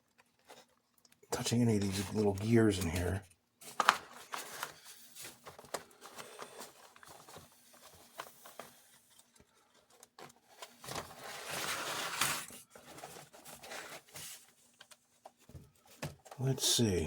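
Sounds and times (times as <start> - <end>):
scraping rustle: 10.2 - 15.4.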